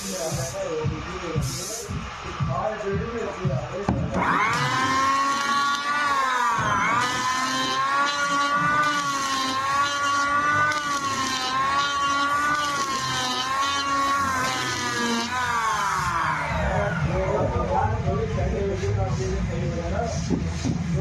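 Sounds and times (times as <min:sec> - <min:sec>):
electric hand planer whining: 0:04.1 - 0:17.6.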